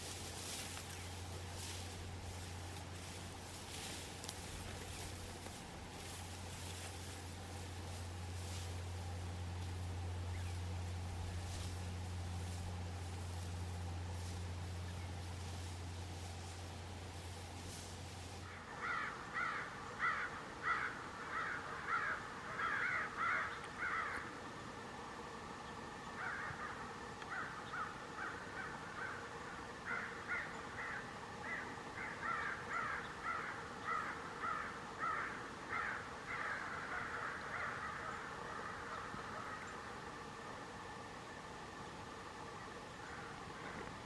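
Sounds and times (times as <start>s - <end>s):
crows cawing: 18.4s - 24.5s, 26.1s - 40.4s, 42.9s - 43.9s.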